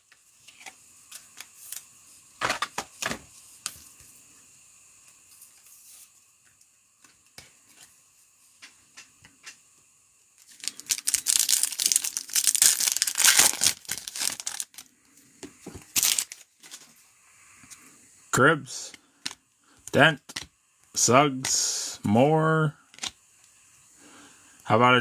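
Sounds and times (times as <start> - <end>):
wrapper tearing and crinkling: 10.4 - 14.9, 15.9 - 16.8.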